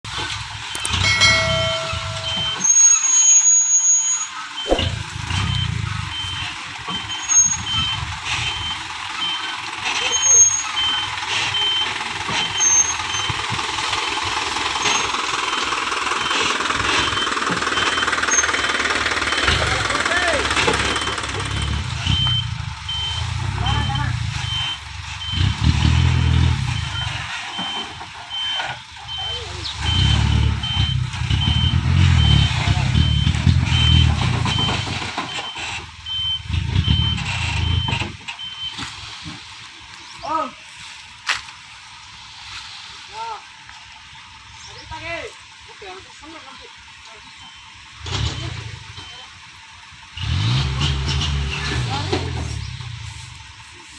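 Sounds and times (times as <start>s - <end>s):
dump truck diesel engine: 0.0s - 53.9s
reversing alarm beeping: 0.7s - 9.5s, 16.1s - 38.8s, 47.4s - 49.3s
thin high squeal: 0.9s - 5.0s.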